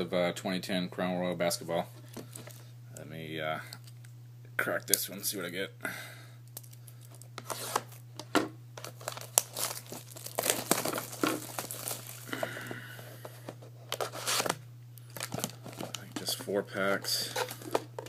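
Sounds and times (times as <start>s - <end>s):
plastic wrapping tearing and crinkling: 6.6s - 8.0s, 8.8s - 12.8s, 13.9s - 18.0s.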